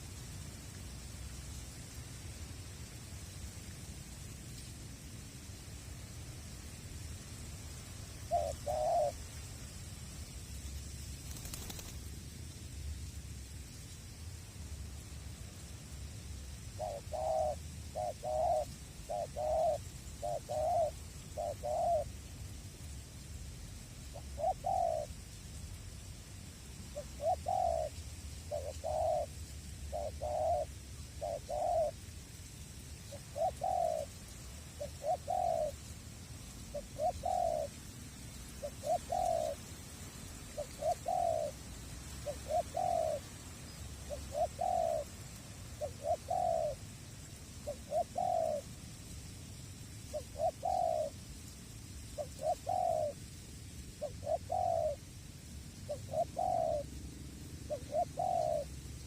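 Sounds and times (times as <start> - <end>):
dove cooing: 8.2 - 9.2, 11.3 - 12.0, 16.6 - 22.2, 24.0 - 25.2, 26.9 - 32.0, 33.0 - 35.9, 36.6 - 37.8, 38.5 - 39.8, 40.4 - 46.9, 47.6 - 48.8, 50.1 - 51.2, 52.2 - 53.2, 54.0 - 55.1, 55.8 - 59.0.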